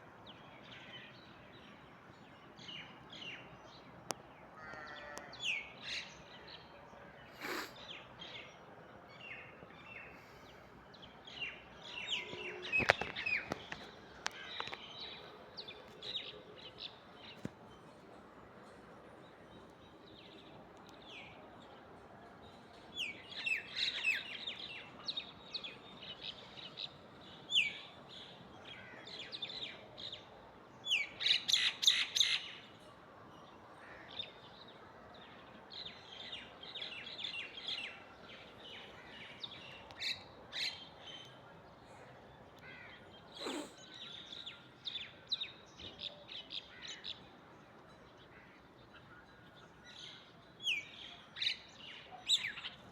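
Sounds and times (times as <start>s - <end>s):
quick repeated bird calls: 43.3s - 44.0s.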